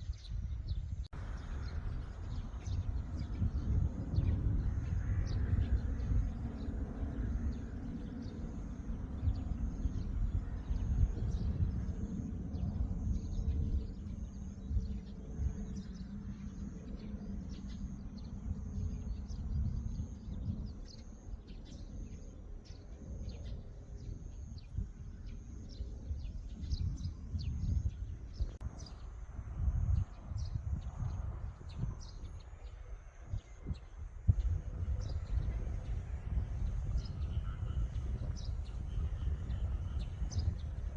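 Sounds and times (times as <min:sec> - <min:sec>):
low outdoor rumble: 0:00.0 - 0:40.9.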